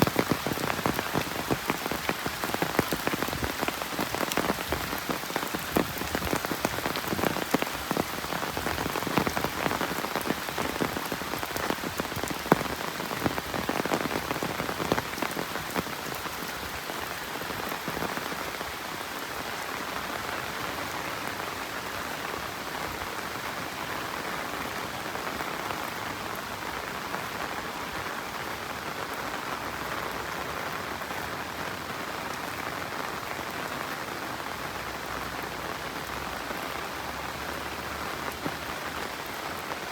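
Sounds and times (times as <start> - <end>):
raindrops striking close by: 0.0 - 39.9
steady rain falling: 0.0 - 39.9.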